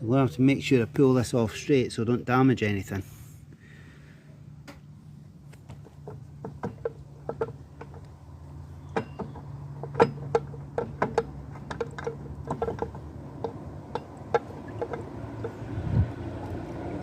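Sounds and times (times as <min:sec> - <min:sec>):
light metallic knocks and clicks: 0:05.6 - 0:08.2, 0:08.8 - 0:15.7.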